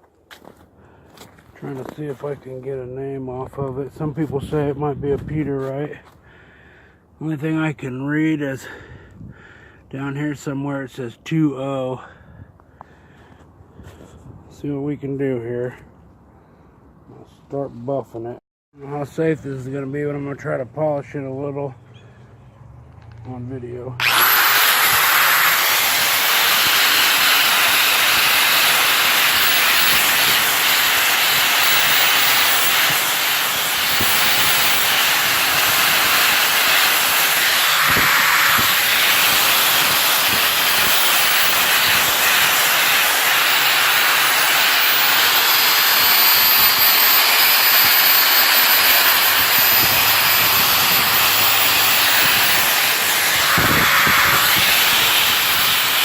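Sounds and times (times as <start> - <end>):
buffing tool grinding metal: 24.0 - 56.0.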